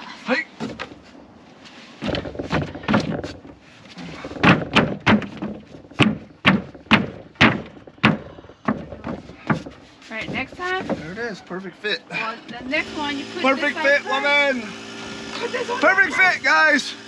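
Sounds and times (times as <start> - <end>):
wood scraping: 0.0 - 16.5
wooden board thuds: 0.6 - 1.0, 2.0 - 11.2.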